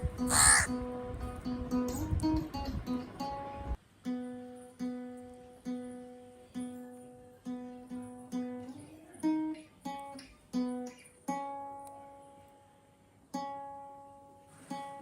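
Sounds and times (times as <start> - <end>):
slow acoustic guitar: 0.8 - 15.0.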